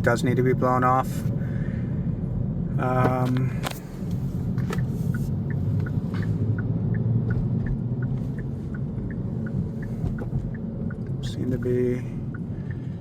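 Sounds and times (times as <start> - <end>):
car engine and road noise rumble: 0.0 - 13.0
faint regular ticking: 4.8 - 13.0.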